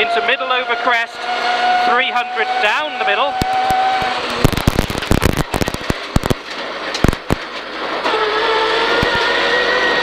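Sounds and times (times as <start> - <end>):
rally car engine accelerating: 0.0 - 10.0
sharp cracks and knocks: 3.4 - 8.2.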